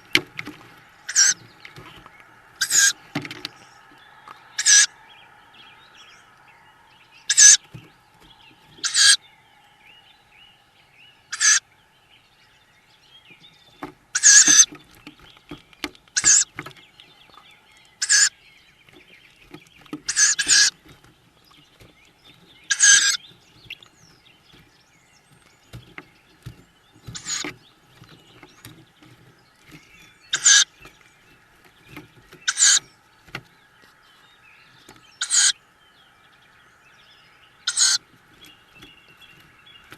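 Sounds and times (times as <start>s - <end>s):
soft bumps of chicks shifting: 0.0s - 9.2s, 13.0s - 35.8s, 37.2s - 39.9s
owl chicks hissing begging calls: 1.0s - 1.5s, 2.5s - 3.0s, 4.4s - 5.1s, 7.2s - 7.7s, 8.7s - 9.2s, 11.3s - 11.6s, 14.1s - 14.7s, 16.2s - 16.6s, 18.0s - 18.4s, 20.0s - 20.9s, 22.6s - 23.9s, 27.0s - 27.5s, 29.7s - 30.8s, 32.4s - 32.9s, 35.2s - 35.6s, 37.6s - 38.1s.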